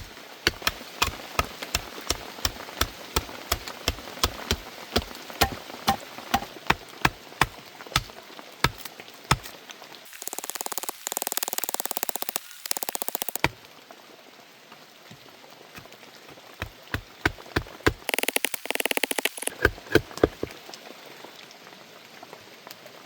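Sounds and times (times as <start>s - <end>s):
sharp wooden knocks: 0.0s - 9.5s, 16.6s - 20.5s.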